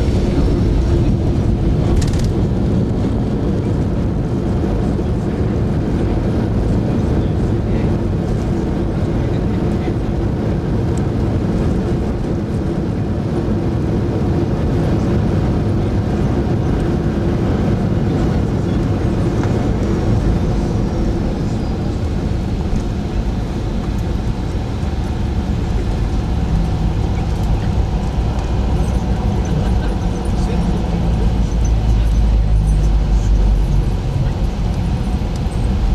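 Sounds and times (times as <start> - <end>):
airliner cabin engine rumble: 0.0 - 35.9.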